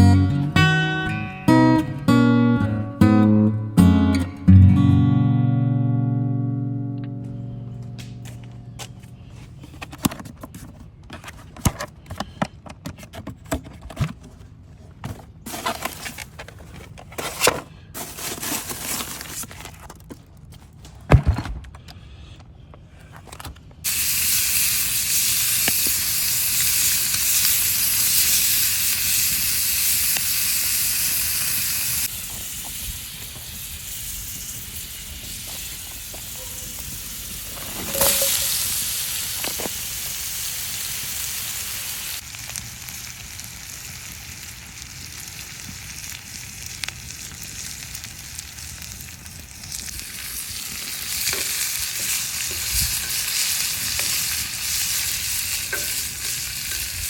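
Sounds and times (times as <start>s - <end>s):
food sizzling in a pan: 23.9s - 57.0s.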